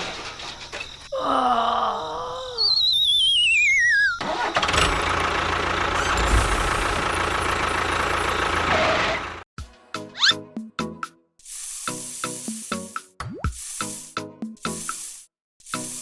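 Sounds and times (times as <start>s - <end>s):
falling wavering whistle: 2.5s - 4.2s
loud engine-like rumble: 4.3s - 9.5s.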